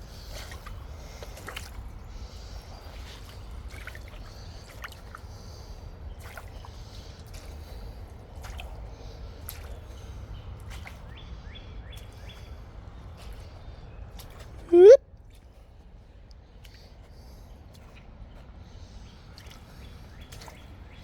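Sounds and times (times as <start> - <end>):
boots squelching through mud: 3.0 - 5.3, 6.2 - 11.1
bird chirps: 14.7 - 15.0.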